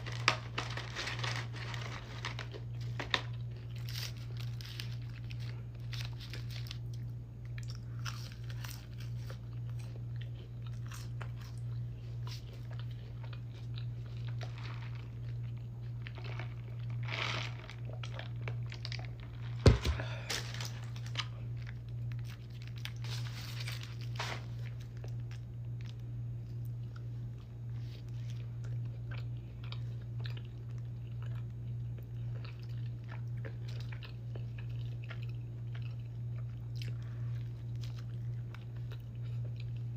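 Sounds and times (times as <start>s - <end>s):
chewing and crunching food: 0.0s - 39.9s
steady low hum: 0.0s - 39.9s.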